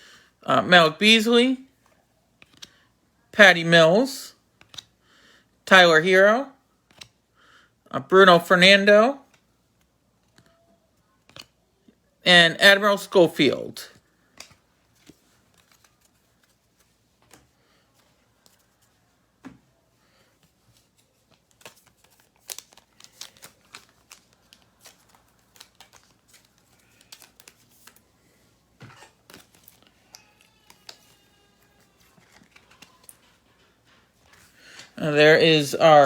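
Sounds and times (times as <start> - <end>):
cards ticking and crinkling: 1.8 - 2.8, 4.6 - 5.0, 6.8 - 7.2, 9.2 - 11.6, 13.9 - 19.0, 20.3 - 28.3, 28.9 - 36.0.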